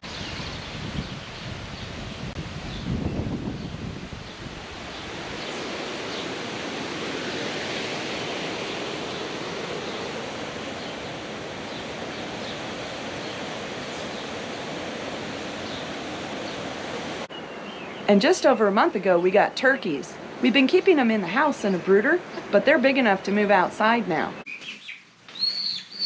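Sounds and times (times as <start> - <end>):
steady rushing noise: 0.0 - 17.3.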